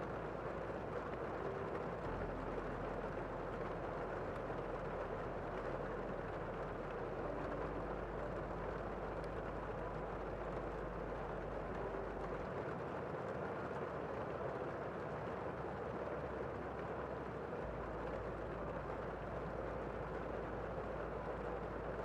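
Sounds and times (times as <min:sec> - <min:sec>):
muffled rain hiss: 0:00.0 - 0:22.0.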